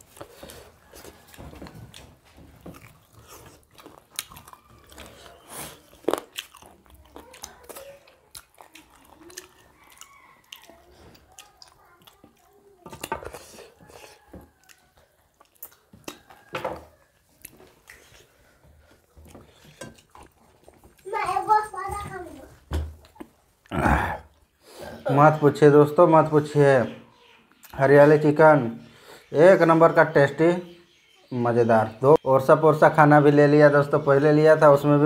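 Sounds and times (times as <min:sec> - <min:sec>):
chewing and lip-smacking: 0:00.0 - 0:21.1.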